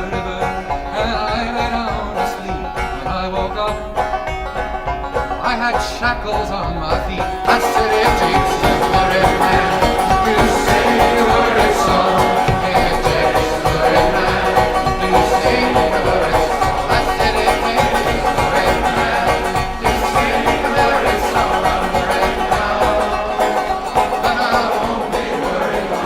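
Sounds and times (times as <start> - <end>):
bluegrass band playing: 0.0 - 26.0
picked banjo: 0.0 - 26.0.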